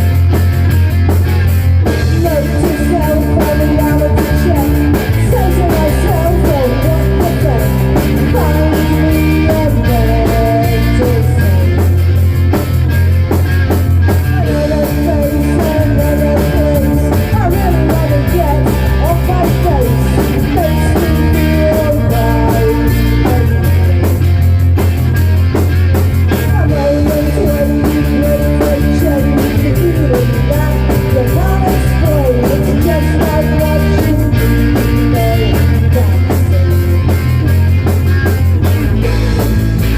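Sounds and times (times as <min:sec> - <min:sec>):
rock song with singing: 0:00.0 - 0:39.9.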